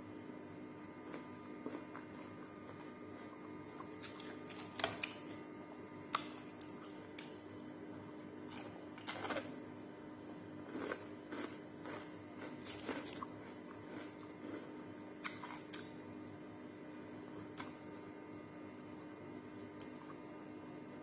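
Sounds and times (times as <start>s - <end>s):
faint steady hum: 0.0s - 21.0s
chewing and crunching: 1.0s - 5.4s, 6.1s - 9.6s, 10.6s - 15.9s.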